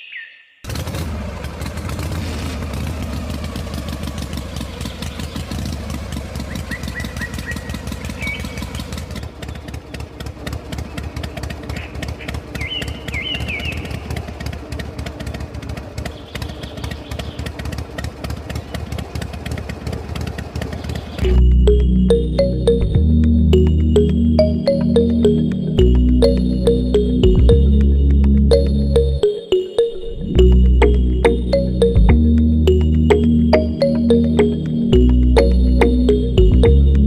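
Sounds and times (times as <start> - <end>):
small engine running: 0.7 - 23.0
birds chirping: 6.5 - 9.8, 11.8 - 14.1.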